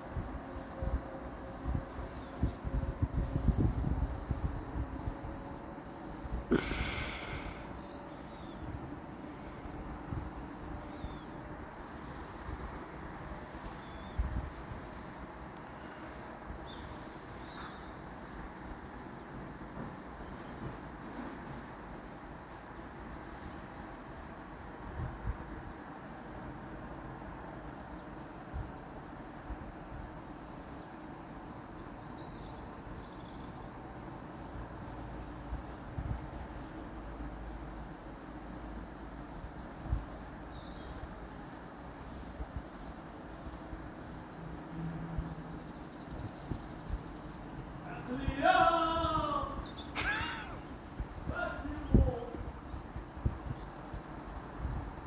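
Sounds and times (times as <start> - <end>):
wind bumps on microphone: 1.6 - 5.4, 51.0 - 55.0.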